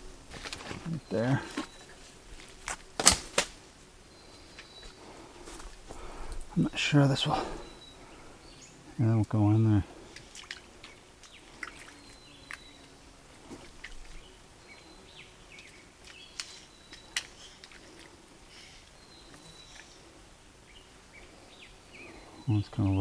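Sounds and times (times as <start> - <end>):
low outdoor hush: 0.0 - 23.0
faint bird chirps: 6.0 - 23.0.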